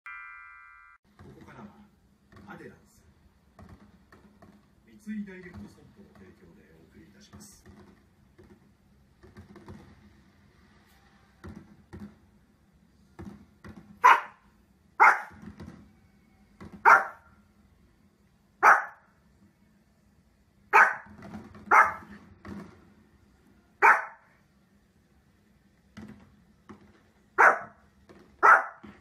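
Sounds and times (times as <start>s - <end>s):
small dog barking: 14.0s - 14.4s, 15.0s - 15.4s, 16.8s - 17.3s, 18.6s - 19.1s, 20.7s - 22.1s, 23.8s - 24.3s, 27.4s - 27.8s, 28.4s - 28.9s.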